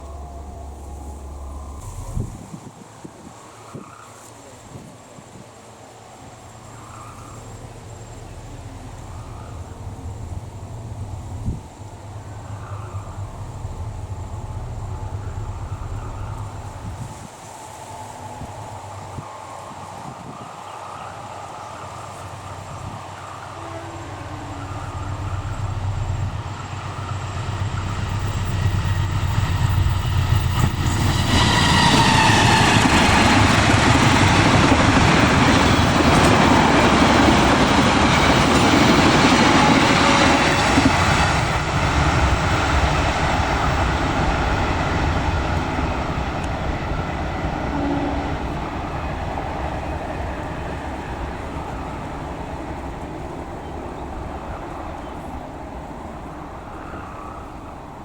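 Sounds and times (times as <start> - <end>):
high tone falling in pitch: 0.0 - 2.4, 23.4 - 34.0
wheels clacking on rails: 0.0 - 2.6, 5.5 - 58.0
train passing at speed: 0.0 - 58.0.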